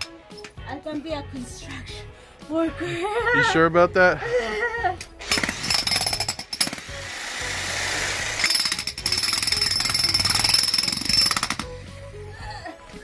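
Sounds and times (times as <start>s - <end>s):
electric jackhammer hammering: 5.2s - 11.8s.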